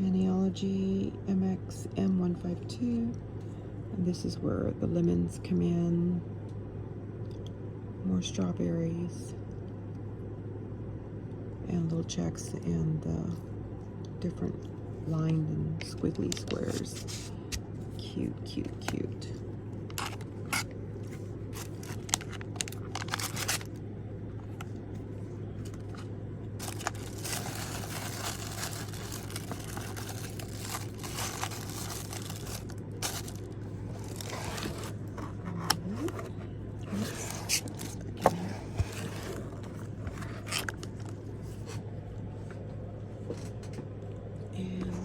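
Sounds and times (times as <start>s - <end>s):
low hum: 0.0s - 45.0s
packaging rustling and scraping: 16.3s - 17.4s, 19.9s - 23.8s, 25.6s - 41.8s.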